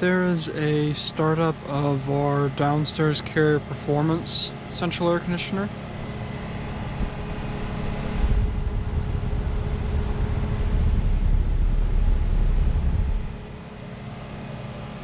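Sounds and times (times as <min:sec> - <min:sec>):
air conditioner compressor hum: 0:00.0 - 0:15.0
heavy low rumble: 0:06.0 - 0:14.5.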